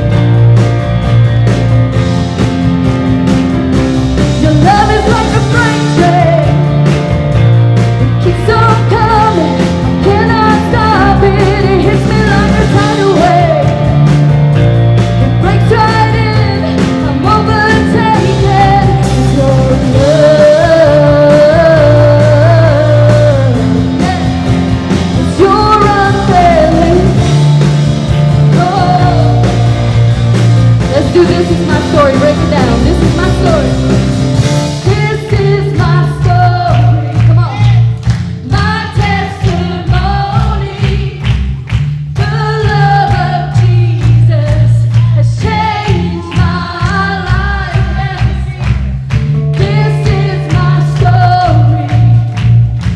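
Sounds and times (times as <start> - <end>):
bass notes: 0.0 - 52.9
steady drum beat: 0.0 - 52.9
person singing: 15.4 - 27.5.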